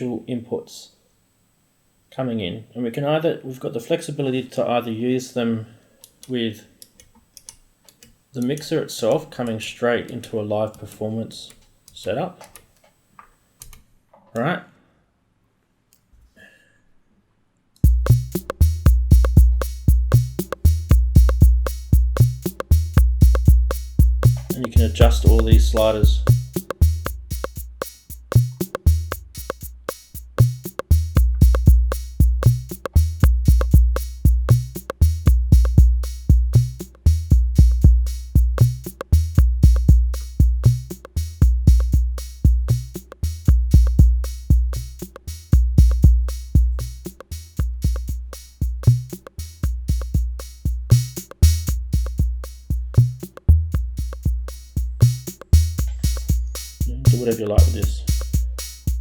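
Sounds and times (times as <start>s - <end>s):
ticking hi-hats: 17.8s - 59.0s
booming kick drums: 17.9s - 29.7s, 30.4s - 47.0s, 47.6s - 59.0s.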